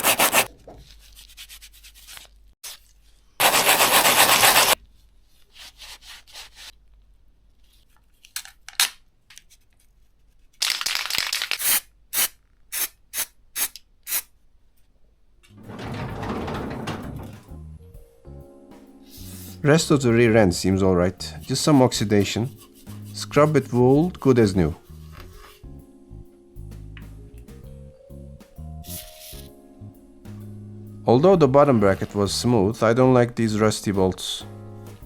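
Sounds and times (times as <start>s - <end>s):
abrasive rubbing on bolts: 0.0s - 0.5s, 21.4s - 24.0s.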